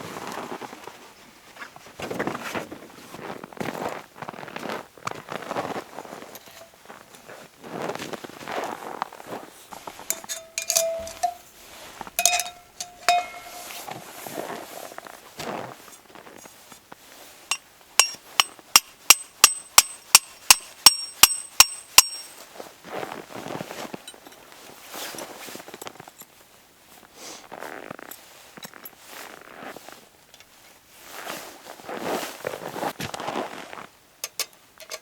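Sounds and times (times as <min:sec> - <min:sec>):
crunching in snow: 0:00.0 - 0:10.1, 0:31.0 - 0:33.9
hammer striking metal stake: 0:10.1 - 0:11.5, 0:12.2 - 0:13.8, 0:17.5 - 0:22.3.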